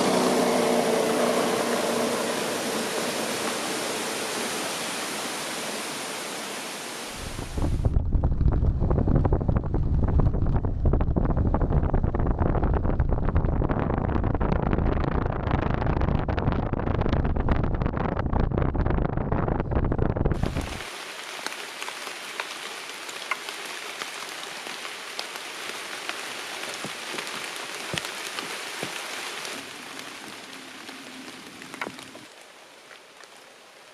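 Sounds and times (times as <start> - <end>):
heavy rain drumming on a tarp: 0.0 - 17.4, 20.3 - 33.9
steady rushing hiss: 0.8 - 7.9, 20.4 - 33.9.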